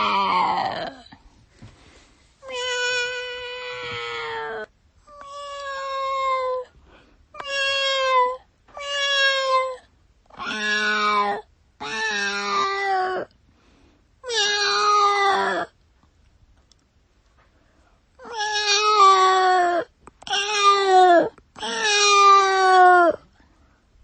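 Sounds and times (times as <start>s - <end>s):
cat meowing: 0.0s - 1.0s, 2.4s - 6.7s, 7.4s - 9.8s, 10.4s - 13.3s, 14.2s - 15.7s, 18.2s - 23.2s.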